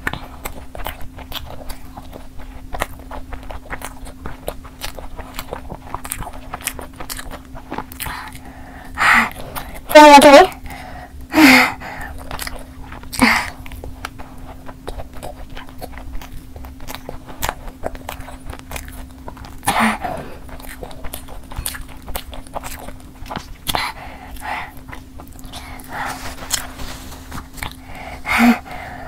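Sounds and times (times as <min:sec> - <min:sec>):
chewing and biting: 0:00.0 - 0:29.0
breaths: 0:08.0 - 0:09.8, 0:10.6 - 0:12.2, 0:23.8 - 0:24.8, 0:25.5 - 0:29.0.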